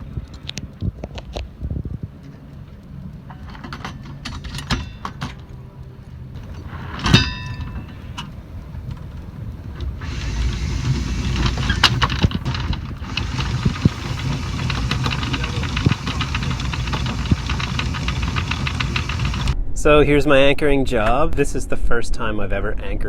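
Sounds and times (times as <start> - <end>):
boat engine running: 6.3 - 19.6
ringing metallic clank: 6.4 - 19.5
loud hiss: 6.4 - 19.6
scattered clicks: 6.4 - 19.6.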